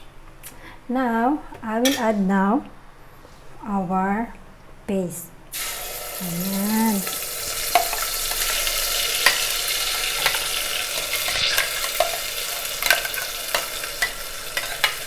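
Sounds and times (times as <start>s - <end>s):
paste sizzling in hot oil: 5.5s - 15.0s
spoon stirring and knocking pot: 7.5s - 15.0s.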